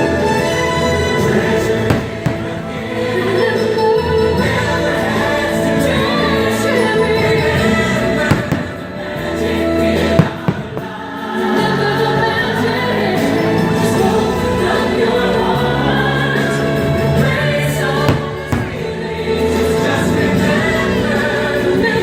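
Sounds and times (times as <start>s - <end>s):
choral holiday music: 0.0s - 22.0s
firework bangs: 1.0s - 3.6s, 7.4s - 11.9s, 17.2s - 20.2s.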